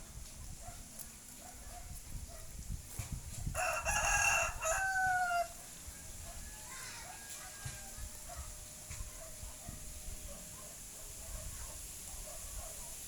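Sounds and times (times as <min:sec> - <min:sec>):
rooster crowing: 0:03.5 - 0:08.1.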